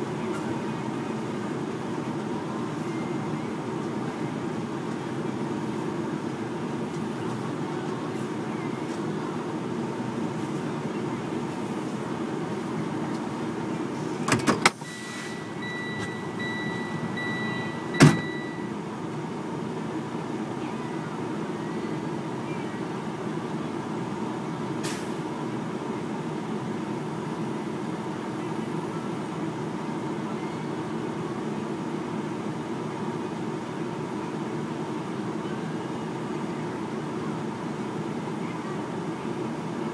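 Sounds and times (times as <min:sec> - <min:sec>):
truck engine running: 0:00.0 - 0:39.9
high pulsing beep: 0:14.8 - 0:18.7.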